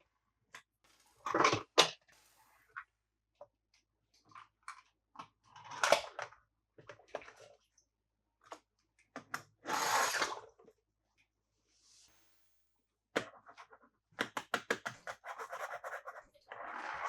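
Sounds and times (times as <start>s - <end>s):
toys clicking and tapping: 14.2s - 15.2s.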